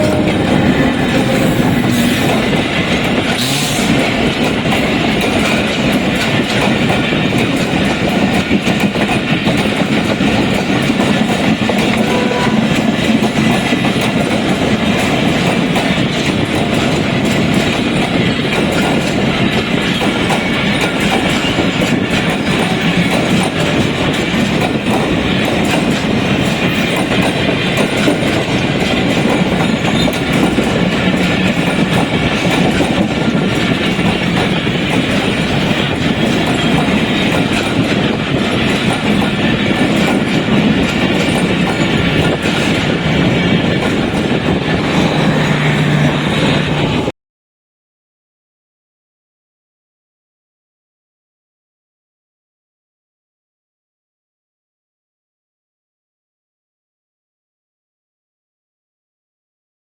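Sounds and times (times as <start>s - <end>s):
train running on track: 0.0s - 47.2s.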